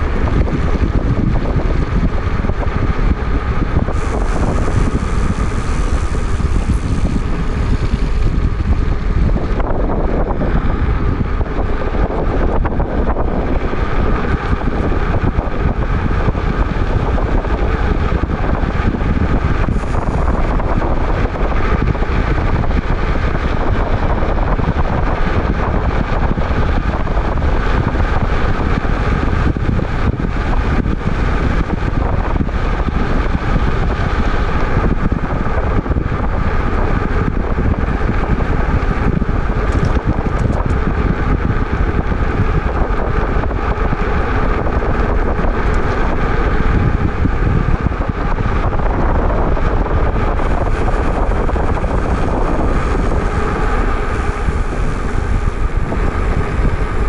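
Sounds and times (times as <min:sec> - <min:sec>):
faint hum of e-bike: 0:00.0 - 0:57.0
wind rumbling on microphone: 0:00.0 - 0:57.0.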